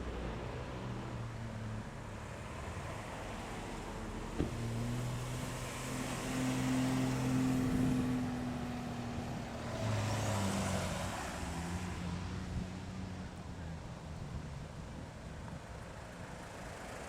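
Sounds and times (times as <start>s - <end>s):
car engines pulling away: 4.0s - 13.2s.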